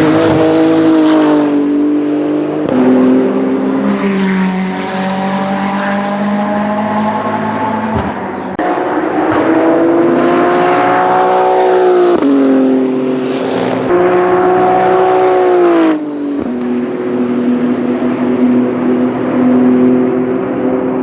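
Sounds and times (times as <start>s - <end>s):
race car engine at high revs: 0.0s - 21.0s.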